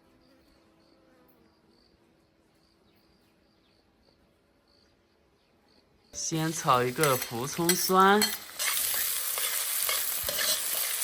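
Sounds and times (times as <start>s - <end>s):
insect chirping: 2.6s - 4.9s.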